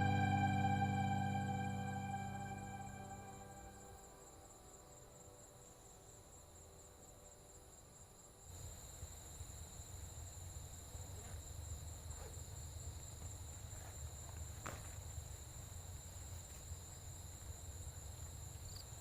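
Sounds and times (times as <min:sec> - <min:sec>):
music: 0:00.0 - 0:04.0.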